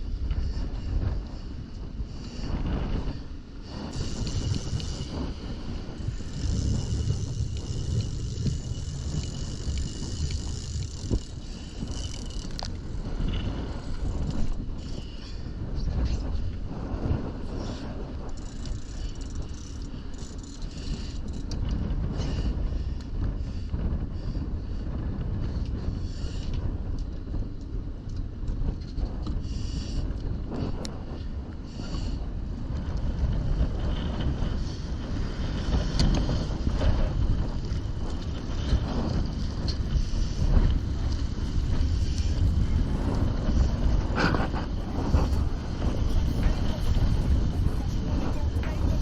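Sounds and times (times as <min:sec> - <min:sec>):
boat low rumble: 0:00.0 - 0:49.0
wind buffeting microphone: 0:00.0 - 0:49.0.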